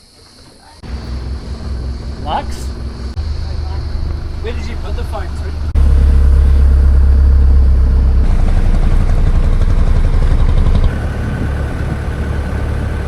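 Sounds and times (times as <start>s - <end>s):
faint steady whine: 0.8s - 13.0s
motorboat engine rumbling: 0.8s - 13.0s.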